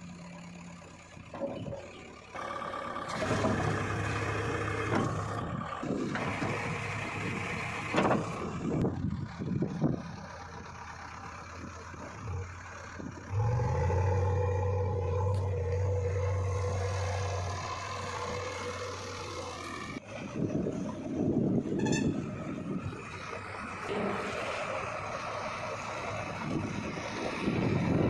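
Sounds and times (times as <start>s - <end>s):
heavy diesel engine running: 0.0s - 28.0s
irregular low rumbling: 6.8s - 28.0s.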